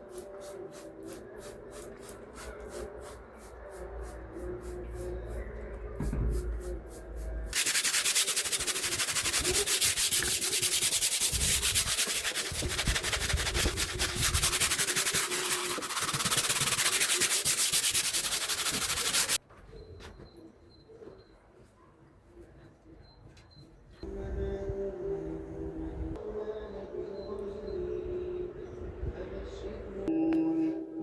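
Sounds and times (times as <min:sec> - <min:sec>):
harsh rubbing or sanding noise: 0:06.6 - 0:19.4.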